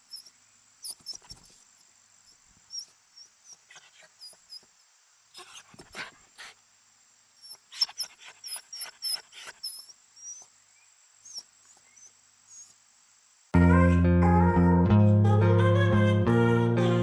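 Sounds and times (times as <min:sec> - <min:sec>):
animal squeaking chirps: 0:00.0 - 0:01.6, 0:02.7 - 0:04.7, 0:07.4 - 0:10.5, 0:11.2 - 0:12.8
rustling and snuffling: 0:00.0 - 0:06.7.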